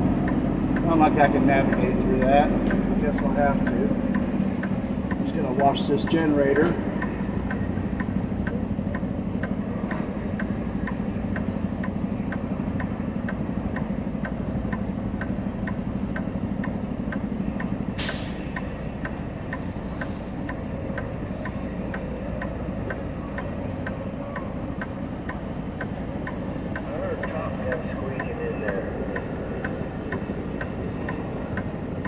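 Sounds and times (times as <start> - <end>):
diesel truck engine running: 0.0 - 32.0
steady ticking: 0.0 - 32.0
air brakes release: 17.9 - 22.1, 23.4 - 24.5
short air hisses: 18.0 - 18.5, 19.6 - 20.4.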